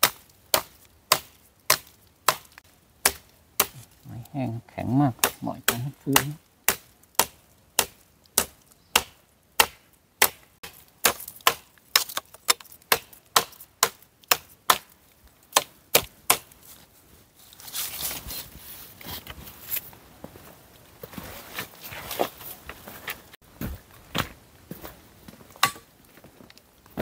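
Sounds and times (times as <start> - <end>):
blade chopping dry wood: 0.0 - 4.0, 5.2 - 16.6, 25.6 - 25.9
rustling: 16.5 - 26.7.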